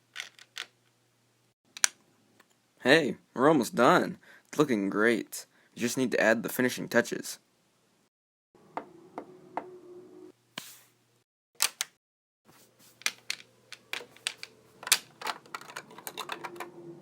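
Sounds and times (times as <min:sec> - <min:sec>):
plastic bricks clicking together: 0:00.1 - 0:00.8, 0:13.0 - 0:16.7.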